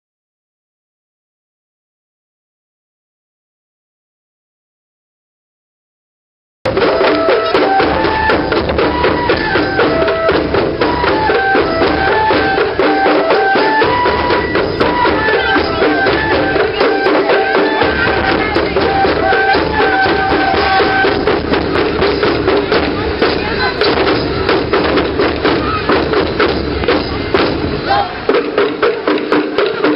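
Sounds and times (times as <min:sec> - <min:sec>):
bamboo flute melody: 0:06.7 - 0:29.9
taiko drumming: 0:06.7 - 0:29.9.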